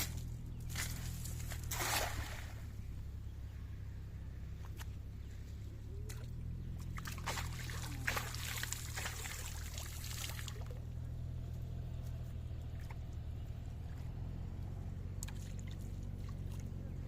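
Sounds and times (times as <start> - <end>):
low hum: 0.0 - 17.0
water splashing and pouring: 0.8 - 2.6, 7.0 - 10.7.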